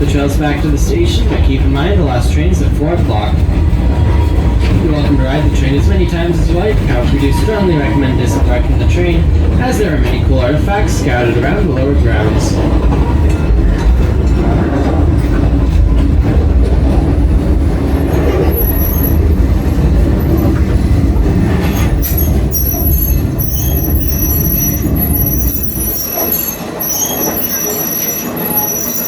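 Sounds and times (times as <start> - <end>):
train rumbling: 0.0 - 29.0
high-pitched wheel squeal: 18.1 - 19.4, 21.7 - 29.0.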